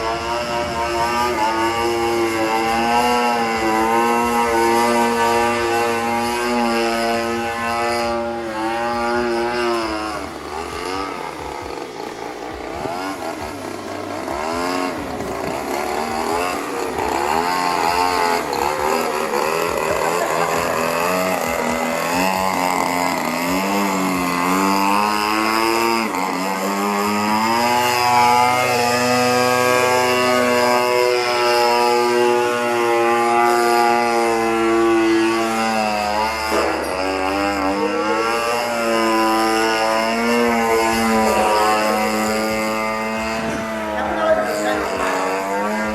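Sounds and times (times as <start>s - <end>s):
model airplane engine running: 0.0s - 45.9s.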